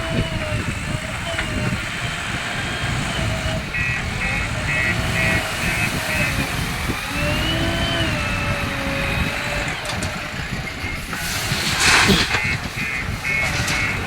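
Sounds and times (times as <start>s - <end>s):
heavy diesel machinery rumbling: 0.0s - 14.0s
loud short hiss: 11.2s - 12.5s.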